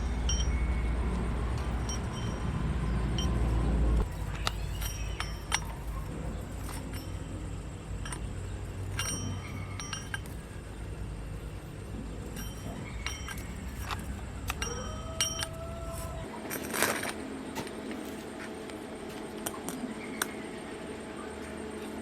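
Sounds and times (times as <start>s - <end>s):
steady low hum: 0.0s - 22.0s
metal parts clinking: 4.0s - 18.2s.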